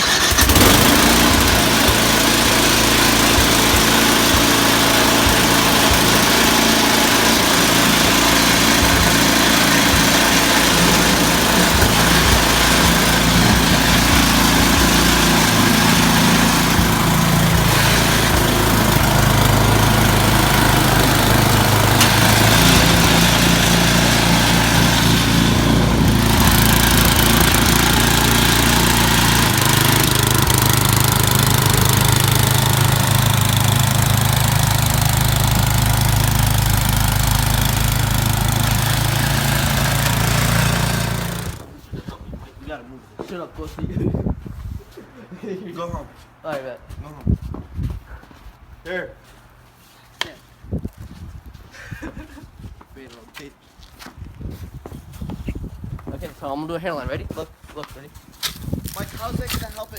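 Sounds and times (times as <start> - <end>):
small petrol engine running: 0.0 - 41.8.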